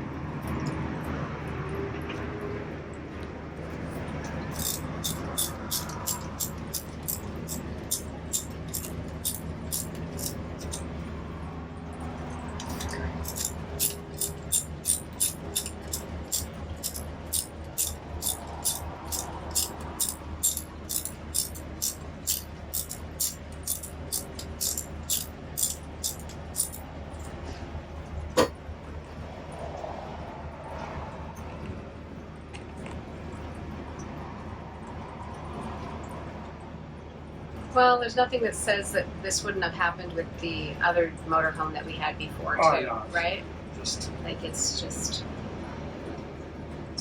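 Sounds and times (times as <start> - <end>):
rhythmic sharp clicking: 4.5 - 10.9, 13.2 - 26.8.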